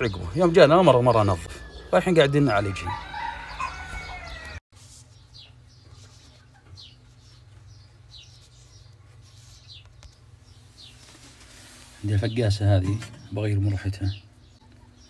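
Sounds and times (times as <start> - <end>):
small bird chirping: 0.0 - 11.4.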